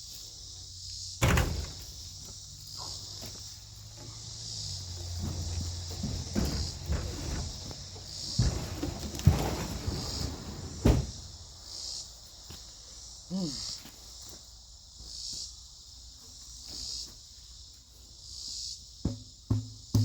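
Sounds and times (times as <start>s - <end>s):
insects trilling: 0.0s - 20.0s
faint knocks: 19.0s - 20.0s.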